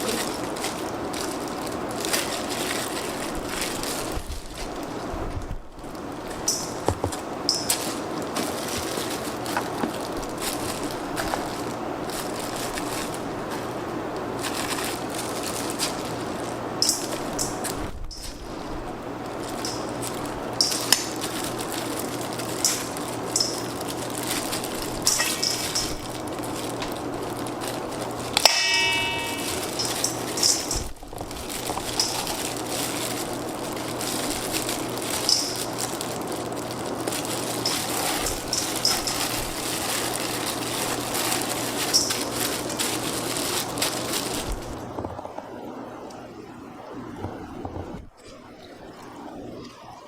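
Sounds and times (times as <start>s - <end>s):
steady background noise: 0.0s - 50.0s
ringing metallic clang: 25.1s - 26.0s, 28.4s - 30.9s
metal clanks and knocks: 28.4s - 31.0s.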